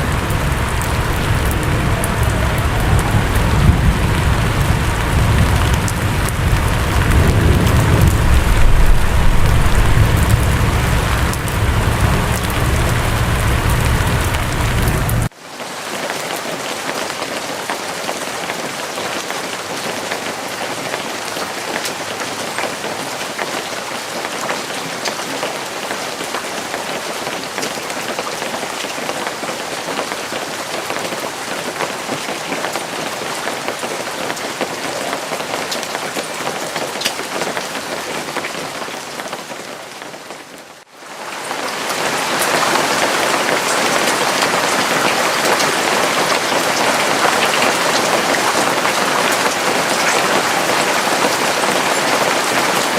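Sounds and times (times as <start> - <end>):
raindrops ticking: 0.0 - 15.3
steady rain hissing: 0.0 - 52.9.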